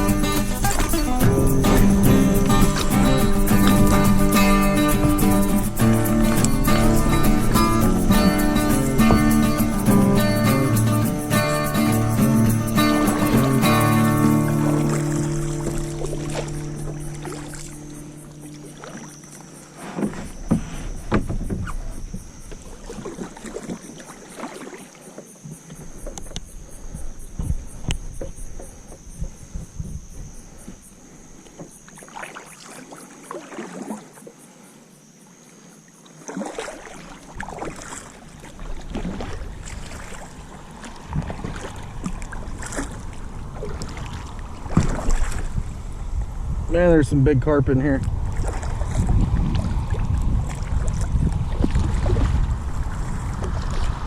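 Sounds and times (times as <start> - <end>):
paddle strokes and splashes: 0.0 - 46.6, 47.9 - 54.0
insects chirring: 0.0 - 54.0
knocks against kayak hull: 0.6 - 10.1, 19.8 - 23.8, 44.7 - 45.5.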